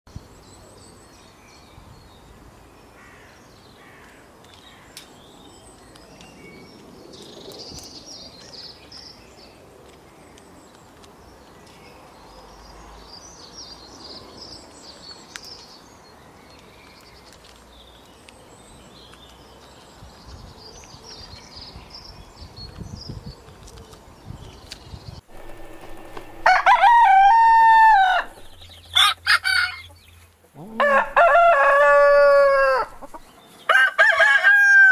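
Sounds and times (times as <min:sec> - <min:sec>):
outdoor background hiss: 0:25.2 - 0:29.0
low rumble: 0:25.3 - 0:28.8.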